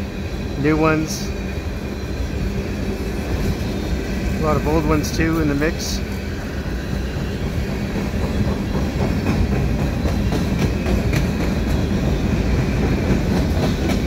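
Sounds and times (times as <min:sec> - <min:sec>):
train wheels rumbling on rails: 0:00.0 - 0:14.0
sharp clacks: 0:08.0 - 0:11.8.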